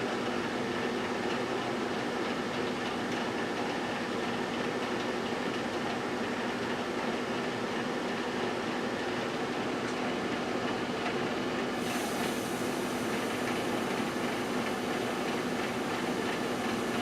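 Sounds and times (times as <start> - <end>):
fan noise: 0.0 - 17.0
microwave oven humming: 0.0 - 17.0.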